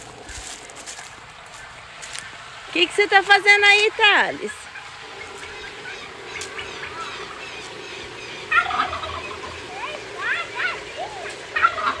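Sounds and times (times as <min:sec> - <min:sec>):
chicken squawking: 0:04.7 - 0:12.0.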